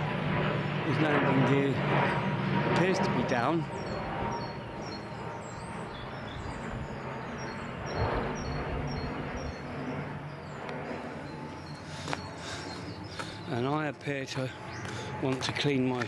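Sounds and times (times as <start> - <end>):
aeroplane passing over: 0.0 - 16.0
small birds chirping: 3.6 - 16.0.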